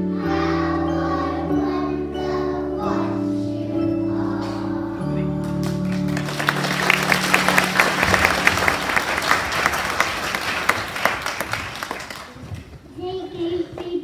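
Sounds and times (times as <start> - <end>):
held music chord: 0.0 - 9.4
audience applauding: 5.6 - 12.6.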